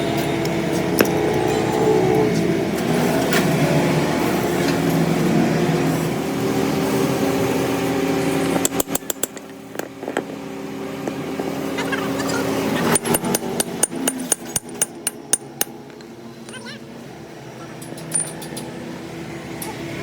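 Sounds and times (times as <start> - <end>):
lathe motor running: 0.0 - 14.6.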